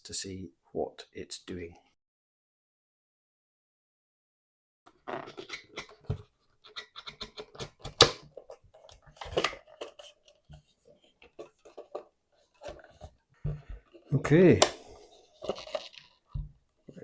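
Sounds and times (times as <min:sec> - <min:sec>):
screwdriver clicking and scraping: 0:05.2 - 0:08.2.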